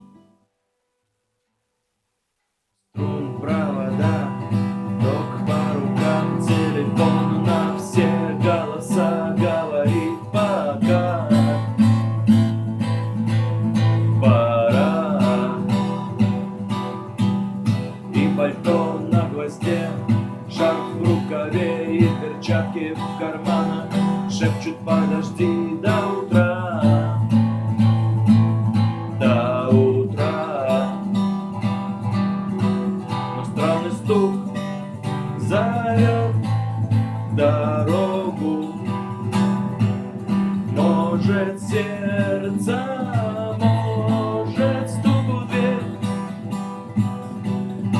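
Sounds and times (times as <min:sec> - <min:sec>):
acoustic guitar strumming: 0:03.0 - 0:47.9.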